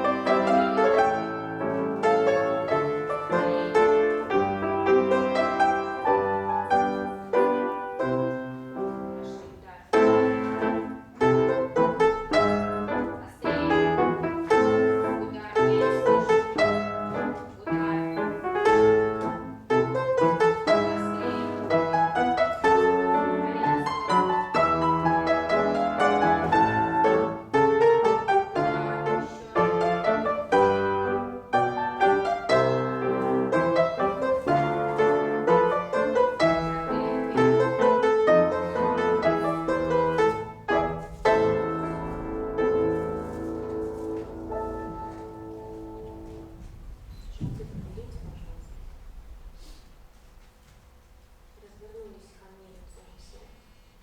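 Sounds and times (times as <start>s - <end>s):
classical piano accompaniment: 0.0s - 54.0s.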